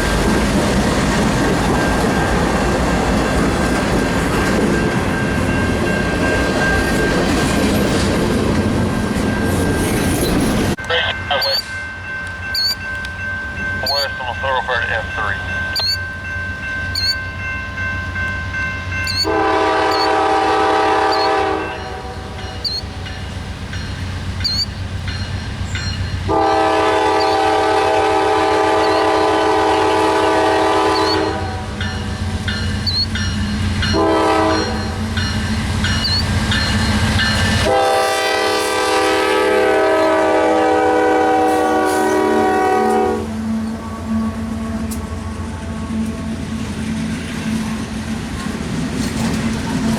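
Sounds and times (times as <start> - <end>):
locomotive engine rumble: 0.0 - 41.4
bell ringing: 10.8 - 19.3
locomotive air horn: 19.2 - 22.7, 26.3 - 31.8, 33.9 - 35.0, 37.6 - 45.0.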